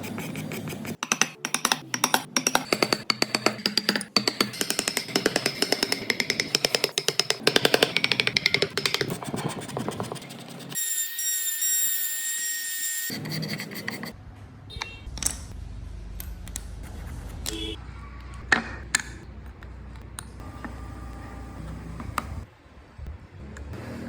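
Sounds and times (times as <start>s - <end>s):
tapping or cutting strokes: 0.0s - 10.8s.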